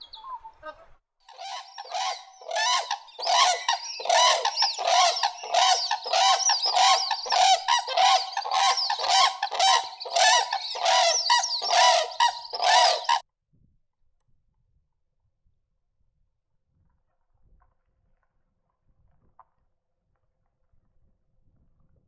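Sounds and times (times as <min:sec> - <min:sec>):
crane calling harshly: 0:01.3 - 0:13.2.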